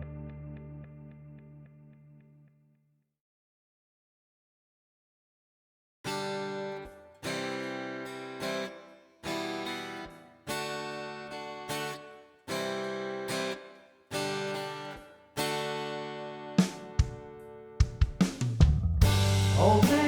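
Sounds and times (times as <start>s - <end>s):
acoustic guitar strumming chords: 6.1s - 20.0s.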